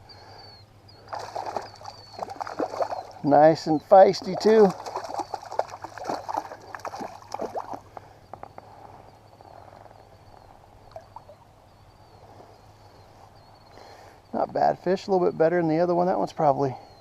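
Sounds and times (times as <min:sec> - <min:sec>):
fish thrashing in water: 0:01.0 - 0:03.3, 0:03.9 - 0:08.0
water splashing and dripping: 0:01.1 - 0:03.3, 0:04.1 - 0:07.8.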